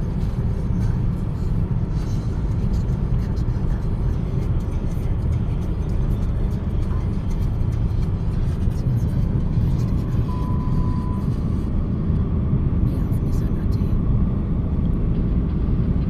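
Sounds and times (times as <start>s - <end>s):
car road and engine rumble: 0.0s - 16.0s
faint short beep: 10.2s - 11.4s.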